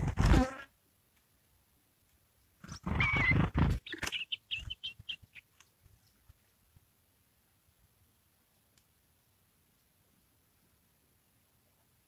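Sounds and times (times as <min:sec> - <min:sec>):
short high bird chirps: 0:03.0 - 0:05.5.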